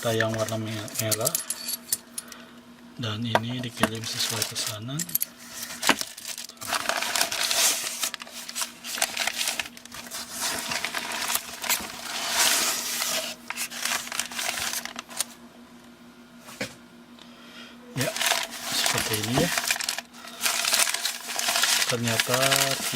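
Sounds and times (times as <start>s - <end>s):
plastic packaging crinkling: 3.8s - 4.8s, 5.4s - 15.4s, 18.0s - 22.9s.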